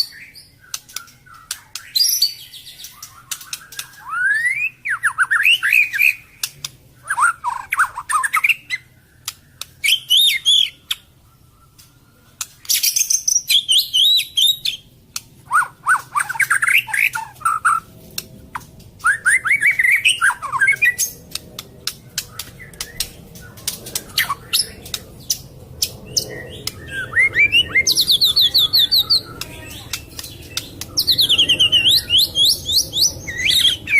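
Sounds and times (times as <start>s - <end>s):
bird singing whistled phrases: 0.0s - 8.9s, 9.6s - 11.8s, 12.7s - 14.8s, 19.0s - 21.2s, 26.1s - 33.9s
sharp clicks: 2.9s - 4.0s, 6.4s - 6.8s, 21.0s - 26.8s, 29.2s - 31.1s.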